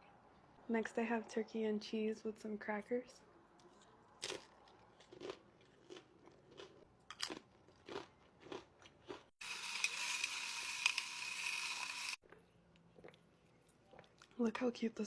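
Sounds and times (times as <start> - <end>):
crunchy chewing of crackers: 3.6 - 14.4
loud steady hiss: 9.4 - 12.2.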